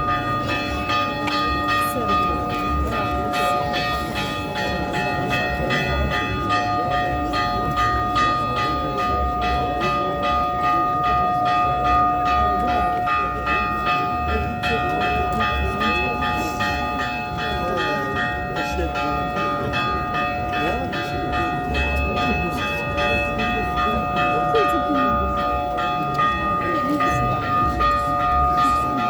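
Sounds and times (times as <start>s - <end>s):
church bells ringing: 0.0s - 29.0s
crowd chatter: 0.0s - 29.0s.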